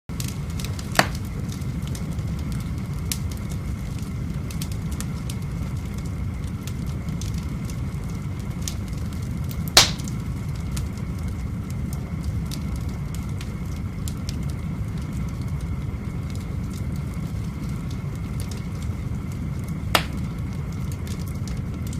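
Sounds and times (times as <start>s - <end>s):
fire burning with crackles: 0.1s - 21.9s
sharp loud pops: 1.0s - 1.2s, 9.8s - 10.1s, 20.0s - 20.2s.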